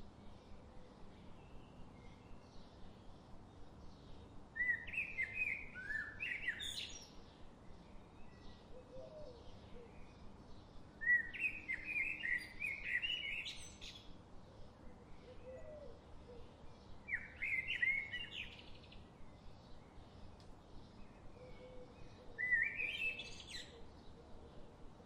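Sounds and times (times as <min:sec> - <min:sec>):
low forest background: 0:00.0 - 0:25.0
faint bird calls: 0:08.6 - 0:10.2, 0:14.9 - 0:18.8, 0:21.3 - 0:24.7.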